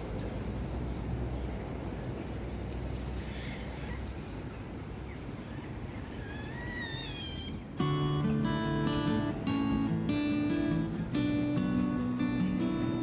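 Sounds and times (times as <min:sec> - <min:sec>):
low outdoor rumble: 0:00.0 - 0:13.0
acoustic guitar music: 0:07.8 - 0:13.0.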